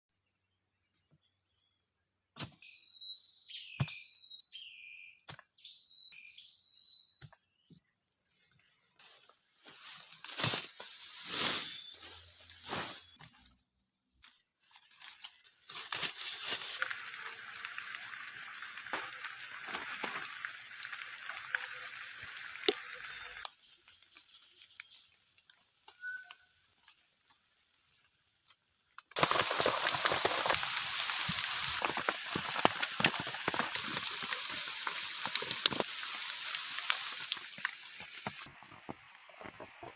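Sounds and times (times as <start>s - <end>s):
rain hiss: 16.3s - 24.0s, 29.2s - 38.7s
heavy rain: 16.8s - 23.5s, 29.2s - 38.5s.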